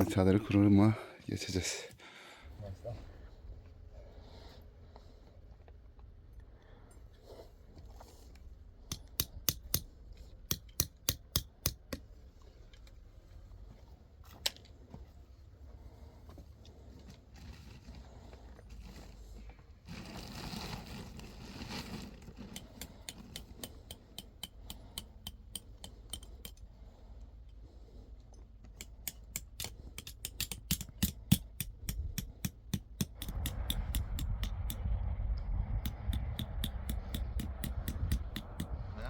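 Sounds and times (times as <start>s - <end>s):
rustling scrape: 17.2s - 23.3s.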